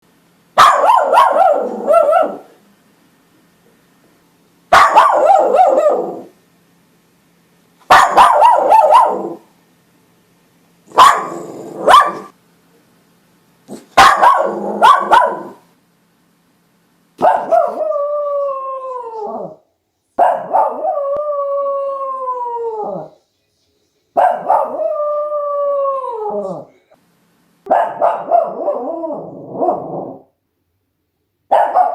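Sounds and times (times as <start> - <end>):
dog barking: 0.6 - 2.5, 4.7 - 6.3, 7.9 - 9.4, 10.9 - 12.3, 13.7 - 15.6, 17.2 - 17.9, 20.2 - 21.0, 24.2 - 24.9, 27.7 - 30.2, 31.5 - 31.9
dog howling: 17.4 - 19.6, 20.4 - 23.2, 24.3 - 26.7, 28.2 - 30.2.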